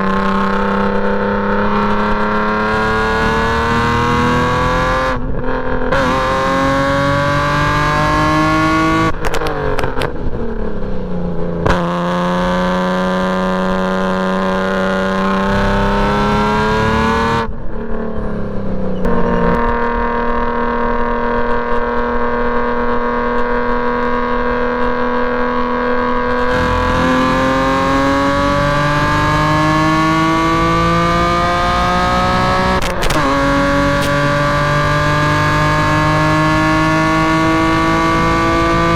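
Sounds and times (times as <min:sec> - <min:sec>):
car engine at full throttle: 0:00.0 - 0:38.9
gear upshift: 0:17.1 - 0:20.0.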